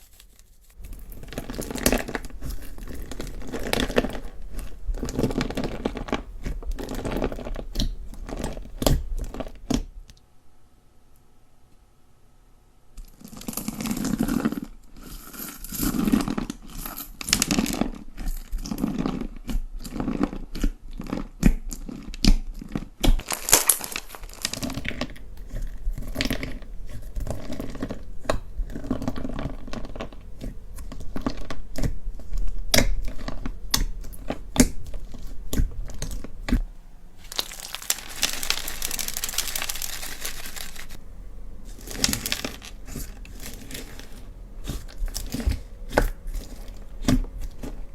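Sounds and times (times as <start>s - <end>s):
slime crackling: 0.0s - 9.9s, 18.6s - 47.9s
slime squelching: 0.0s - 10.0s, 13.1s - 47.9s.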